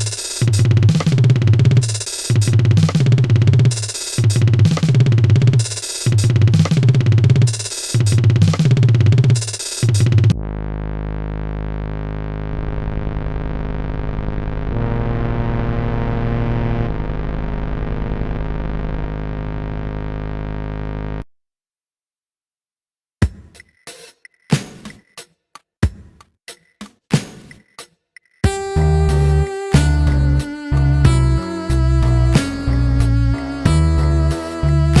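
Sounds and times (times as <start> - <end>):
drum-machine beat: 0.0 - 10.4, 23.2 - 35.0
heavy synthesizer bass: 0.0 - 21.2, 28.4 - 35.0
long held synthesizer chord: 10.4 - 21.2, 28.5 - 35.0.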